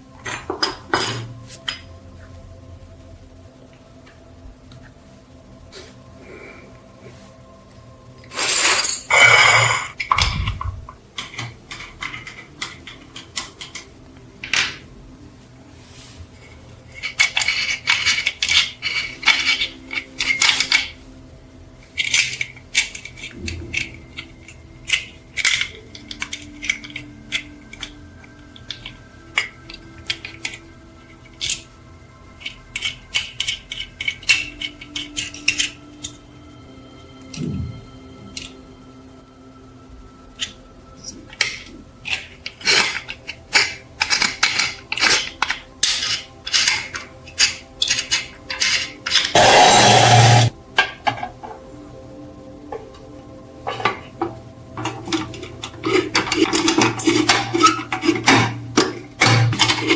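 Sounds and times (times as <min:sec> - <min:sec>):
small metal parts clinking: 0:08.3 - 0:14.8, 0:16.9 - 0:21.0, 0:21.8 - 0:36.2, 0:40.4 - 0:51.8, 0:54.8 - 0:59.9.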